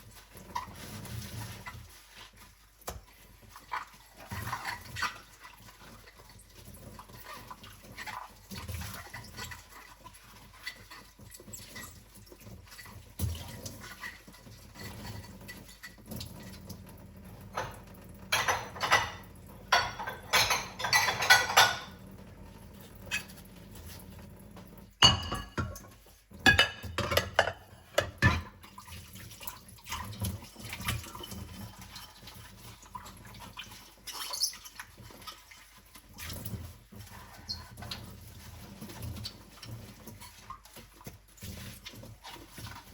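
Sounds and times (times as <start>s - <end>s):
water splashing in sink: 0.0s - 42.9s
dishes clattering: 17.6s - 22.0s, 25.0s - 28.6s
plates and cutlery clinking: 18.4s - 22.0s, 25.0s - 28.6s.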